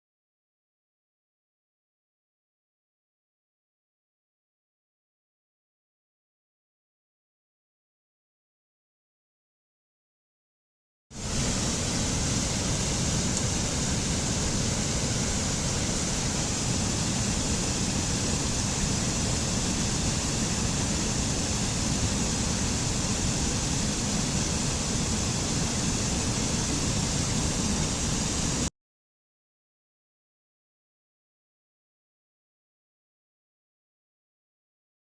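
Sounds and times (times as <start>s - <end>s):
waterfall rushing: 11.2s - 28.7s.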